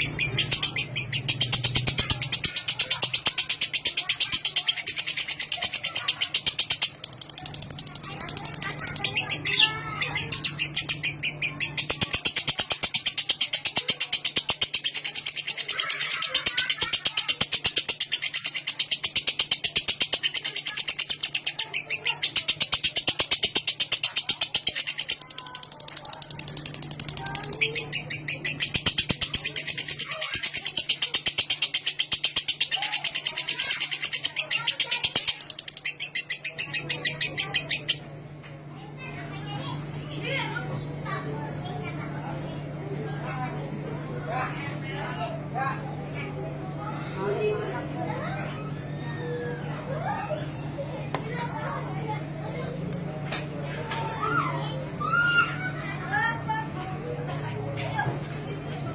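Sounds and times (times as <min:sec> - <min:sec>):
lovebird chatter: 0:00.0 - 0:38.4.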